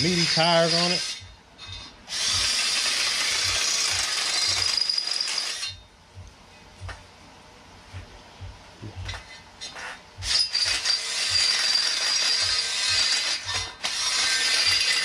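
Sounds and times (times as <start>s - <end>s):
power tool cutting metal: 0.0s - 1.3s, 2.1s - 5.8s, 10.2s - 15.0s.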